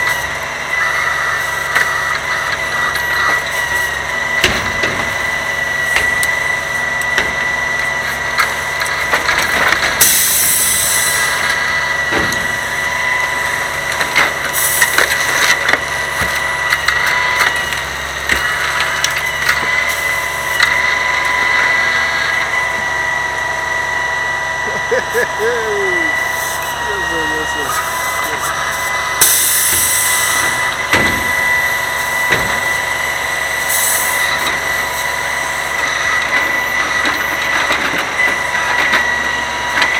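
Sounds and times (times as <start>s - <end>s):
truck engine running: 0.0s - 39.9s
steady high whine: 9.6s - 37.9s.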